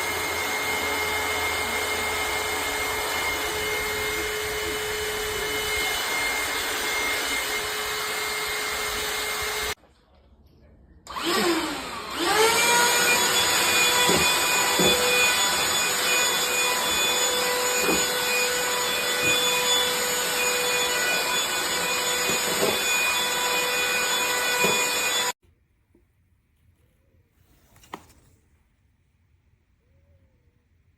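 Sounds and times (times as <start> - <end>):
handheld vacuum cleaner whining: 0.0 - 9.8, 11.1 - 25.4.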